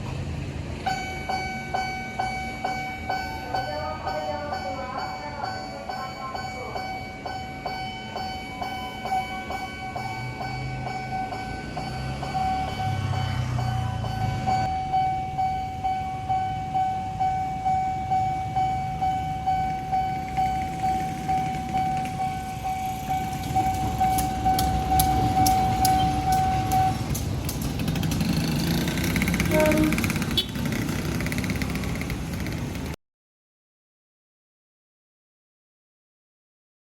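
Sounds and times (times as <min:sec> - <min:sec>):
street noise: 0:00.0 - 0:33.0
train passing with rhythmic rumble: 0:00.0 - 0:33.0
level crossing alarm ringing: 0:00.8 - 0:27.3.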